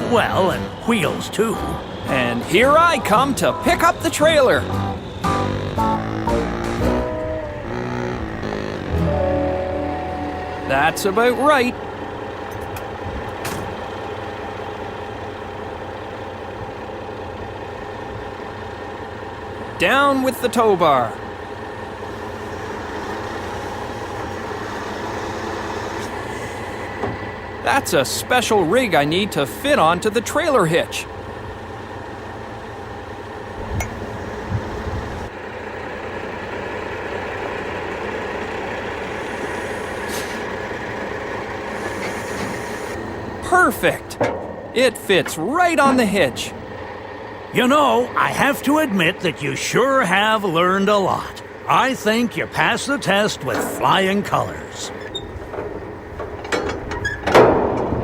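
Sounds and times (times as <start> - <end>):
truck engine idling: 0.0 - 58.0
low thumps: 4.8 - 11.3, 54.9 - 58.0
air brake hiss: 39.1 - 40.5, 41.7 - 43.0.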